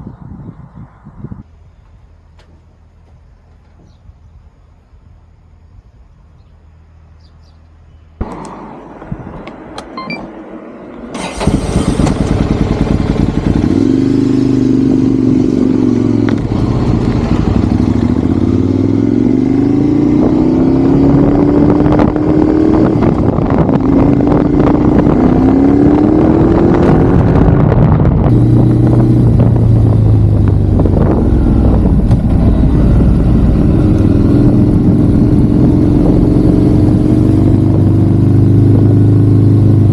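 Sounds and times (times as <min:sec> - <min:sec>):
wind rushing over microphone: 0:00.0 - 0:02.1, 0:08.2 - 0:39.9
motorcycle engine revving: 0:10.5 - 0:39.9.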